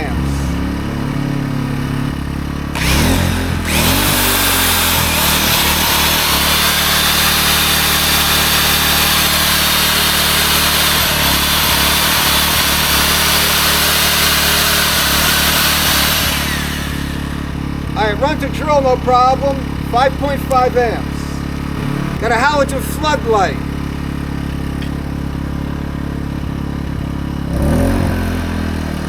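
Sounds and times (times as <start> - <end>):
generator engine running: 0.0 - 29.0
electric drill spinning: 2.6 - 17.8.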